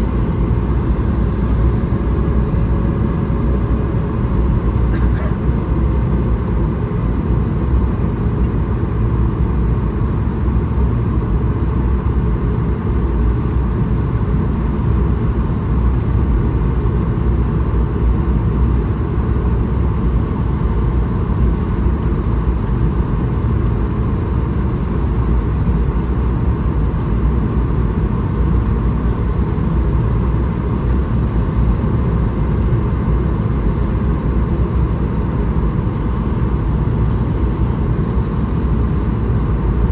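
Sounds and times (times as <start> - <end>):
airplane cabin rumble: 0.0 - 9.4, 27.6 - 39.9
faint steady engine whine: 0.0 - 39.9.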